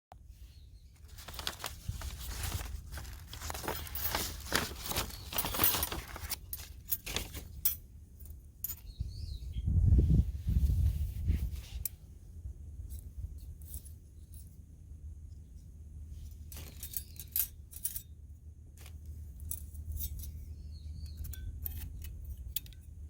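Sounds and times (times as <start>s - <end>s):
low rumble of handling: 0.2s - 23.0s
rustling: 0.4s - 7.8s
metal parts clinking: 1.1s - 9.0s, 16.3s - 18.2s, 18.8s - 23.0s.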